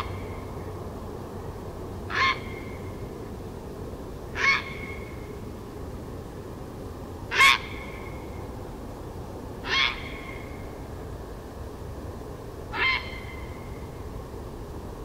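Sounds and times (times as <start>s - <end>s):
harsh bird calls: 2.1s - 2.9s, 4.4s - 5.2s, 7.3s - 8.2s, 9.6s - 10.7s, 12.7s - 13.7s.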